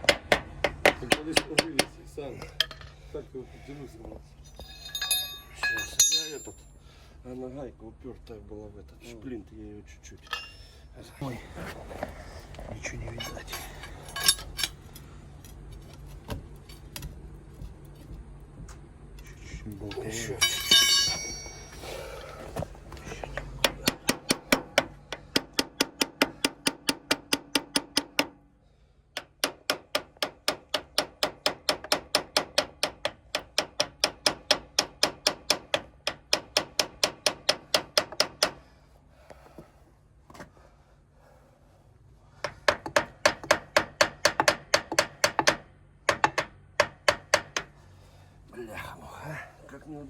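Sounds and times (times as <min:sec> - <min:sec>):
hammer striking metal: 0:04.6 - 0:06.6, 0:20.2 - 0:21.8, 0:23.6 - 0:28.4.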